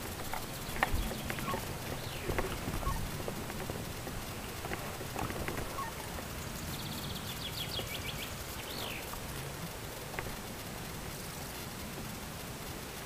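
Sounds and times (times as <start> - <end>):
faint clicks: 0.0 - 13.0
steady rustling hiss: 0.0 - 13.0
songbird trilling: 0.6 - 9.2.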